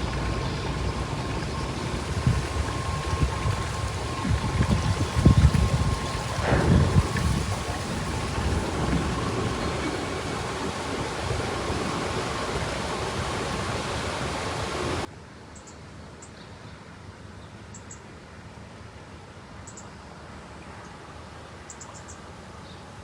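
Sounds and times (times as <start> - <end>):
low rumble: 0.0 - 15.1
wind and water rushing: 0.0 - 15.1.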